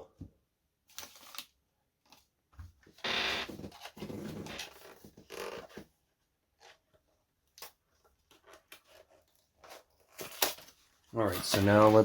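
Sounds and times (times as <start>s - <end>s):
cards rustling: 0.9s - 2.3s, 7.6s - 12.0s.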